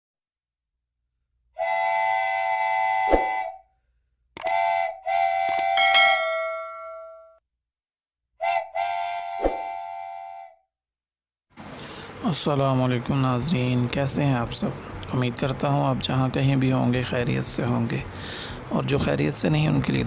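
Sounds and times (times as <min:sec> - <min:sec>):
train whistle blasts: 0:01.6 - 0:03.6, 0:04.4 - 0:06.0, 0:08.4 - 0:10.6
sharp click: 0:04.4 - 0:04.6.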